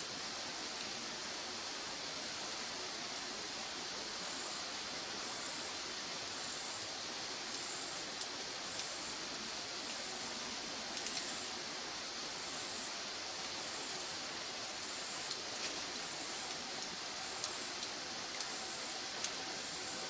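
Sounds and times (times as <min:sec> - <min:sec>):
firewood burning hiss: 0:00.0 - 0:20.0
fire crackles and pops: 0:10.4 - 0:11.6.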